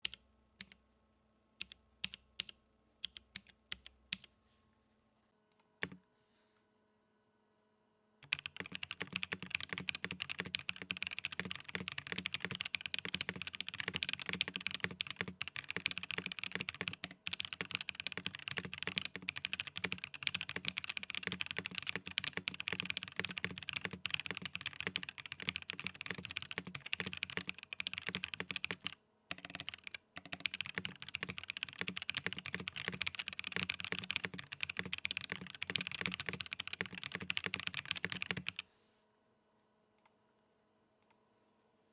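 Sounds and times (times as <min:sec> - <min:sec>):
mechanical keyboard typing: 0:01.6 - 0:04.3, 0:05.8 - 0:06.0, 0:08.2 - 0:38.6.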